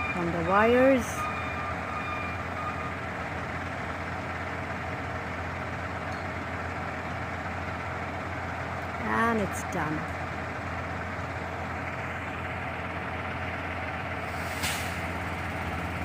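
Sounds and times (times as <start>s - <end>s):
beeping alarm: 0.0s - 3.0s
truck engine running: 0.0s - 16.0s.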